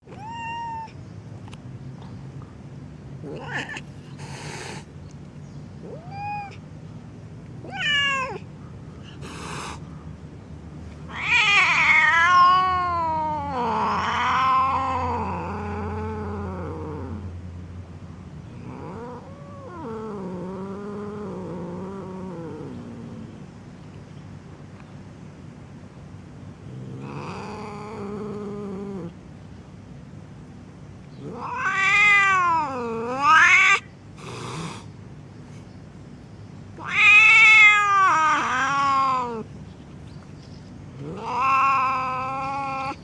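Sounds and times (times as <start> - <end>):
kitten yowling: 0.0 - 1.0, 5.8 - 6.6, 7.6 - 8.4, 11.1 - 16.5, 31.3 - 33.9, 36.8 - 39.5, 41.0 - 43.0.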